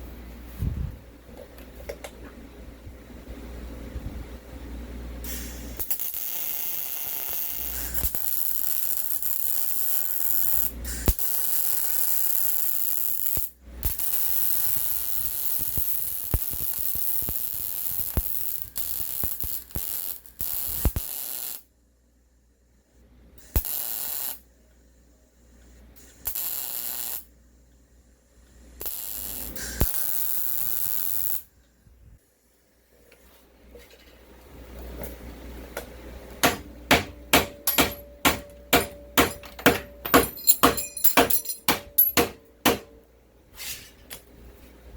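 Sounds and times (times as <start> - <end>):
arc welding crackling hiss: 5.2 - 21.7, 23.4 - 24.4, 25.6 - 27.3, 28.5 - 31.5.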